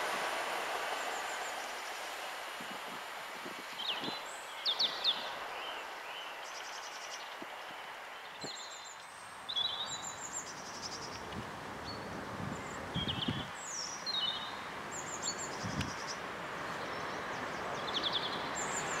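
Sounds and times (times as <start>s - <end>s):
train pulling away: 0.0s - 3.4s
small birds chirping: 0.7s - 19.0s.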